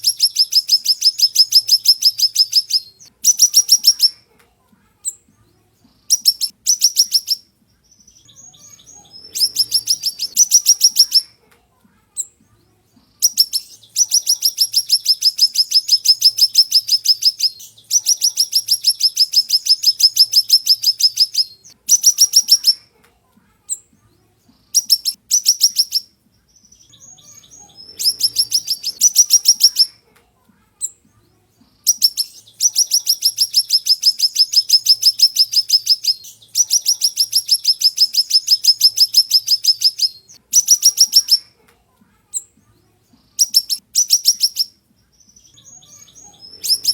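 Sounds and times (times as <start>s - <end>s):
songbird singing fast trills: 0.0s - 4.2s, 6.1s - 11.3s, 13.2s - 22.8s, 24.8s - 30.0s, 31.8s - 41.5s, 43.3s - 46.9s.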